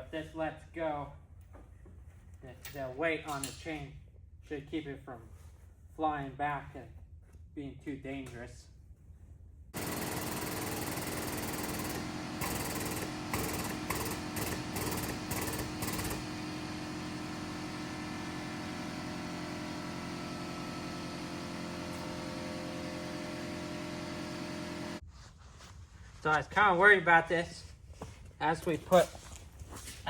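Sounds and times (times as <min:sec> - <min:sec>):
hydraulic pump running: 0:09.8 - 0:25.0.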